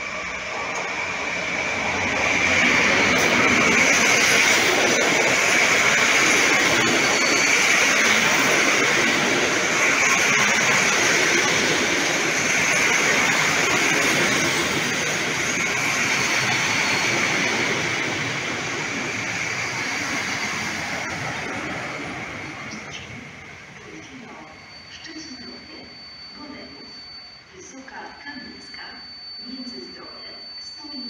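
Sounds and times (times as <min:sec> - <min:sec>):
train wheels rushing on rails: 0:00.0 - 0:23.9.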